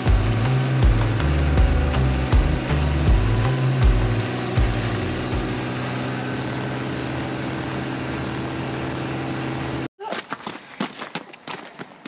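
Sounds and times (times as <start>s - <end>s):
combine harvester running: 0.0s - 9.9s.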